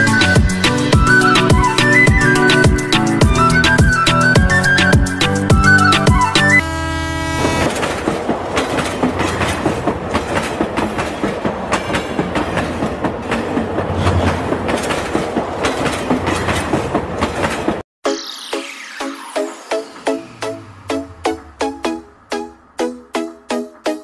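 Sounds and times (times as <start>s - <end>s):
train horn blast: 6.6s - 7.8s
train wheels clickety-clack: 7.7s - 17.8s.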